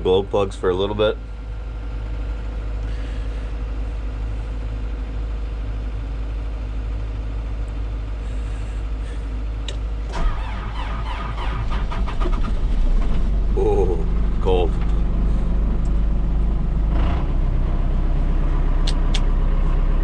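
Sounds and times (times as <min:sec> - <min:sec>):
diesel engine idling: 0:00.0 - 0:20.0
diesel engine cranking and starting: 0:08.2 - 0:20.0.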